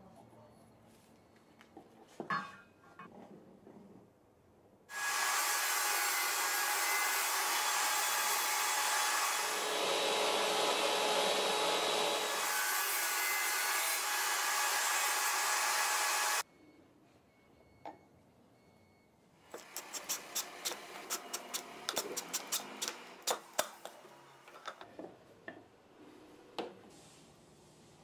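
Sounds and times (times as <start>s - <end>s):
saw blade cutting wood: 4.9s - 16.4s, 19.5s - 24.0s
table saw running: 4.9s - 16.4s.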